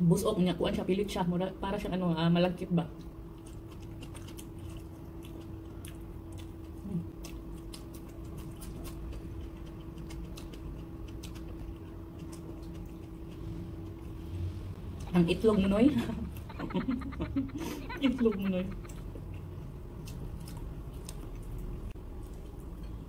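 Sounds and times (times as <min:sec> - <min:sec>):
faint steady hum: 0:00.0 - 0:23.0
person chewing and smacking lips: 0:03.0 - 0:14.2, 0:16.2 - 0:23.0.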